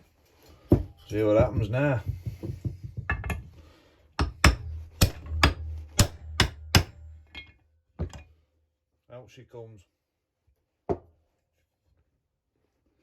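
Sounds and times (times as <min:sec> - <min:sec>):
hard knocks on metal: 0:04.2 - 0:08.2.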